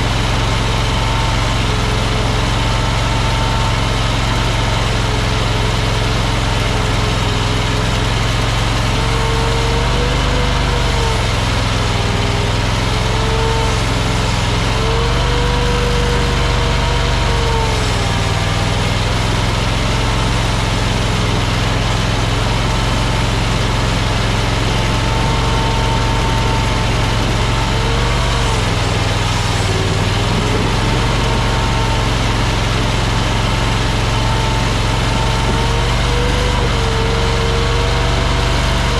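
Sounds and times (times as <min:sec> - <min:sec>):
small engine running: 0:00.0 - 0:38.9
whine rising and falling: 0:22.5 - 0:38.9.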